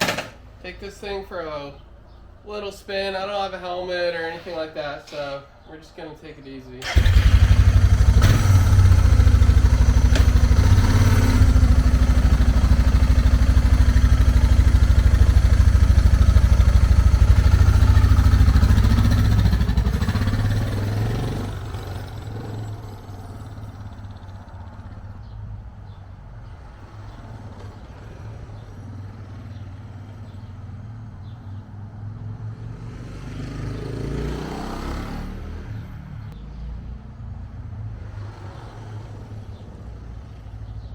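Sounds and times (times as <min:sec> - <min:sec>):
motorcycle engine running: 0:06.8 - 0:26.0.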